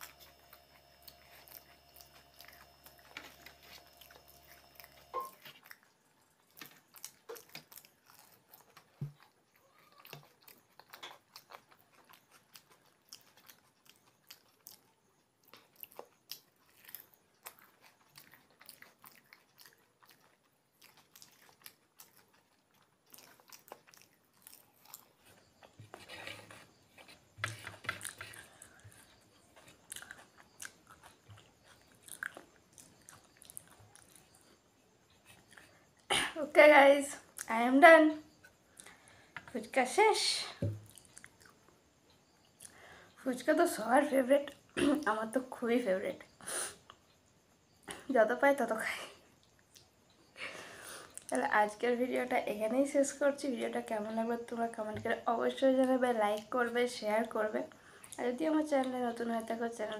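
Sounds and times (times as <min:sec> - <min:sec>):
crisp crunches of biting: 0:00.0 - 0:25.7
chewing noises: 0:00.0 - 0:36.1, 0:40.8 - 0:43.2, 0:49.4 - 0:50.3, 0:50.9 - 0:51.5.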